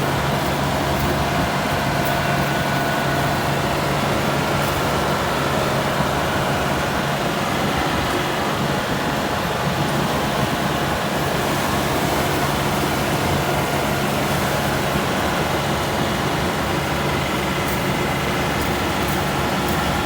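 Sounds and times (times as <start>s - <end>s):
combine harvester running: 0.0s - 20.0s.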